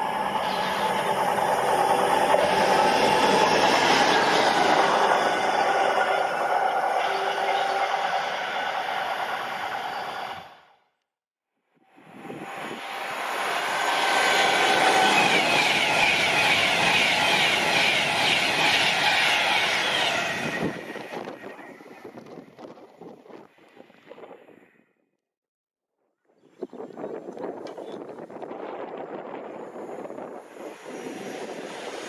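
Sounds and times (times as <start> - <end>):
train passing at speed: 0.0 - 10.7, 11.9 - 22.6, 28.6 - 32.0
wind on microphone: 12.0 - 13.2, 19.7 - 24.8, 26.4 - 32.0.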